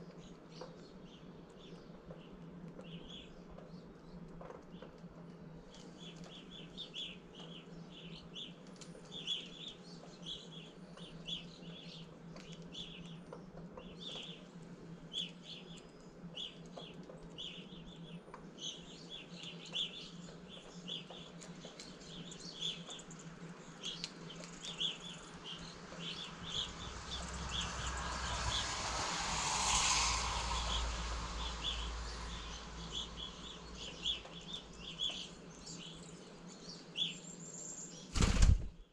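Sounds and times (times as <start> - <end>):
birds chirping: 15.2 - 38.1
vehicle passing on road: 24.1 - 35.4.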